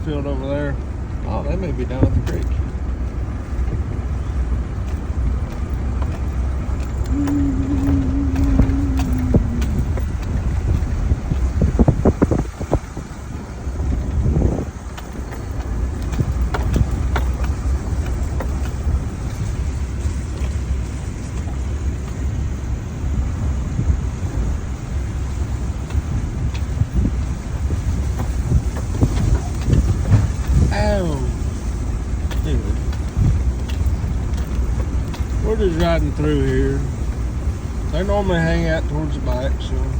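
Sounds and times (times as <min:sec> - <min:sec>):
pickup truck engine and tyre rumble: 0:00.0 - 0:39.9
truck rattles and knocks: 0:00.0 - 0:39.9.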